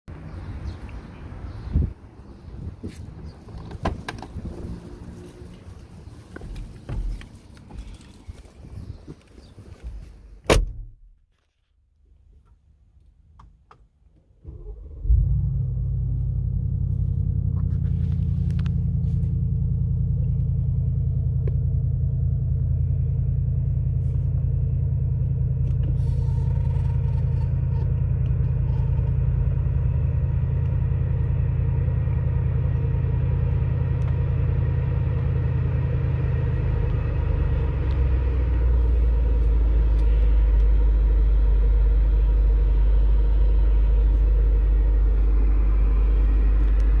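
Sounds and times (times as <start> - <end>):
car engine idling: 14.6 - 47.0.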